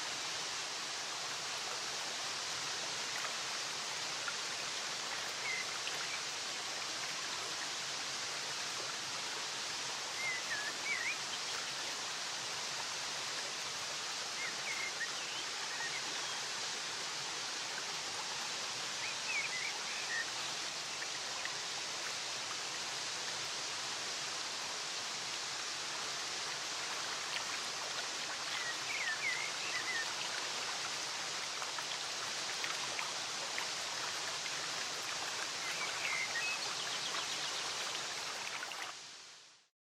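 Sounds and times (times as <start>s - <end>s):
stream water rushing: 0.0s - 39.6s.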